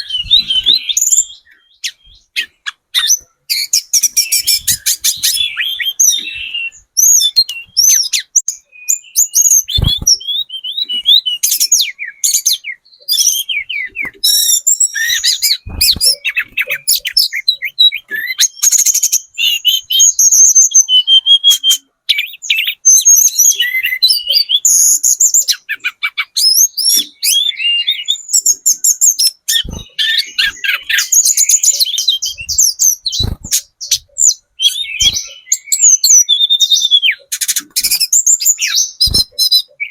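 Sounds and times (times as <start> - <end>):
bird singing whistled trills: 0.0 - 39.9.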